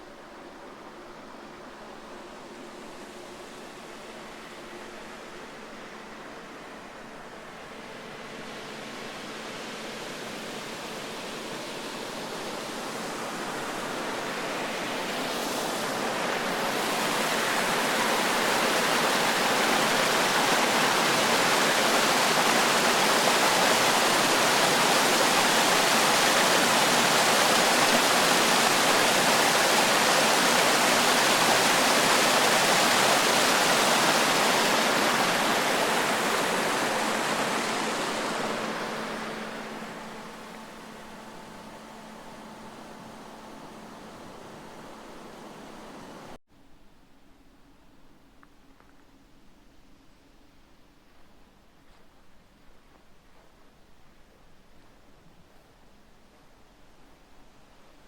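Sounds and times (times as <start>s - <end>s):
rushing water roar: 0.0s - 46.4s.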